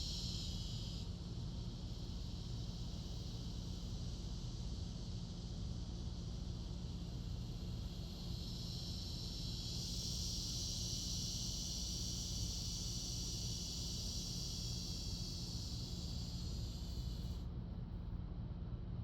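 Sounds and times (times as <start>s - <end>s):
high-pitched insect buzzing: 7.3s - 17.4s.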